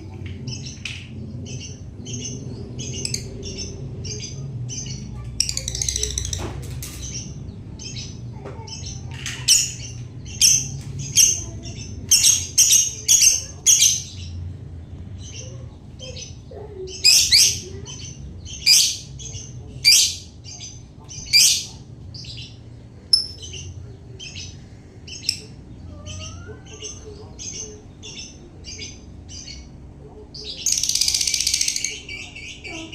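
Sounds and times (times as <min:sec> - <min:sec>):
lovebird shrill chirps and squawks: 0:16.1 - 0:21.8.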